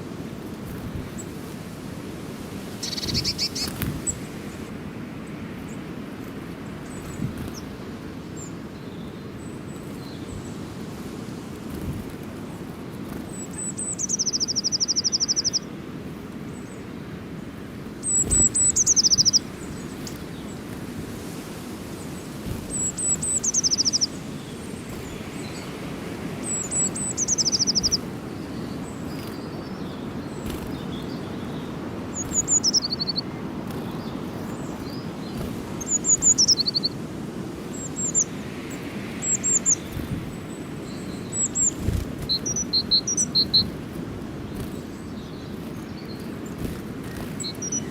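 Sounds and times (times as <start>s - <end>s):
songbird singing trills: 2.7s - 5.8s, 13.1s - 15.7s, 17.8s - 20.8s, 21.9s - 47.9s.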